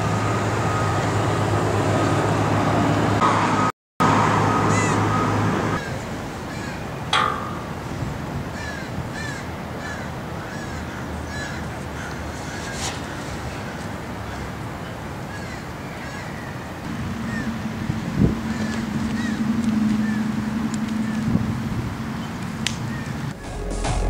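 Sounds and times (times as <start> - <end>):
traffic hum: 0.0 - 23.4
bird calling: 4.6 - 23.6.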